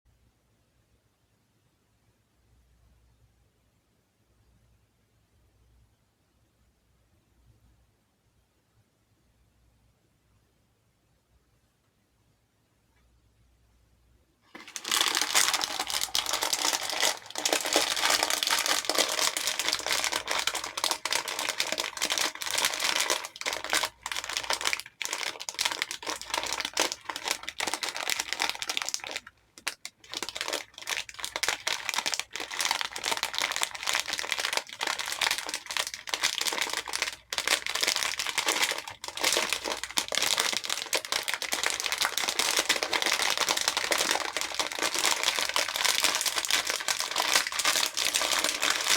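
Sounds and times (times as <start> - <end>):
plastic beads rattling in a bowl: 14.5 - 48.9.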